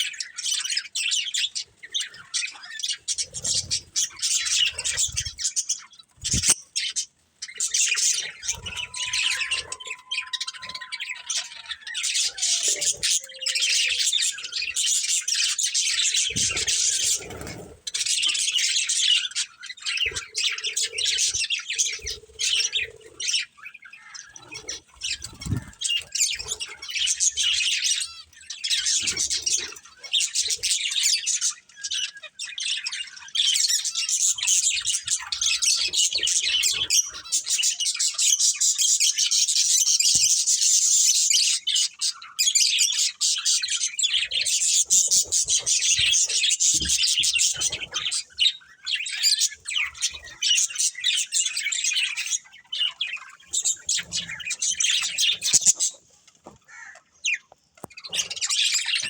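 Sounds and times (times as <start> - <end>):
budgerigars chirping and chattering: 0.0 - 59.0.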